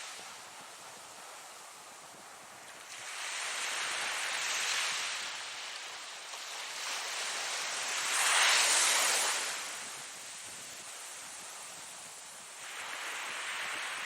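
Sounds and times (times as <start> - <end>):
ocean waves breaking: 6.4 - 10.5.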